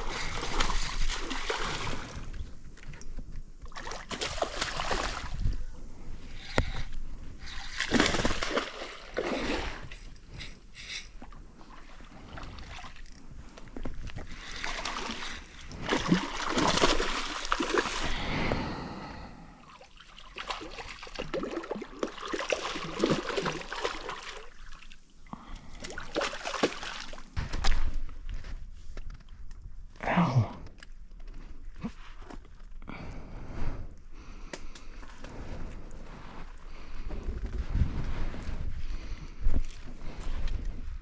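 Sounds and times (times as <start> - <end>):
water splashing and sloshing: 0.0 - 29.2.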